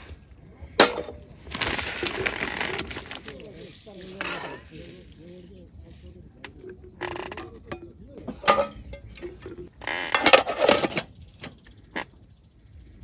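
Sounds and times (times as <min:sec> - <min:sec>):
camp cooking gear clinking: 0:00.0 - 0:12.5.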